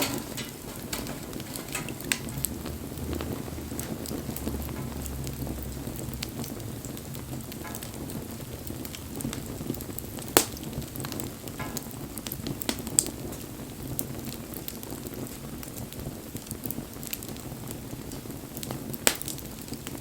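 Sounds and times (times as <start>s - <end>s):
sharp loud pops of fire: 0.0s - 5.0s, 5.9s - 14.9s, 18.1s - 19.7s
wood fire crackling and hissing: 0.0s - 20.0s.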